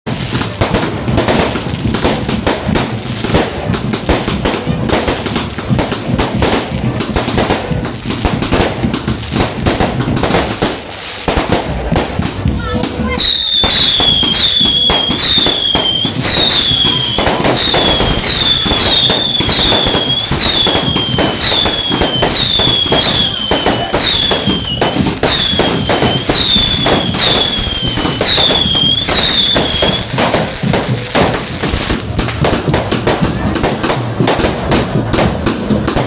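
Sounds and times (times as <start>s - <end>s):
fireworks popping and crackling: 0.0s - 36.0s
whistling firework shots: 13.1s - 36.0s.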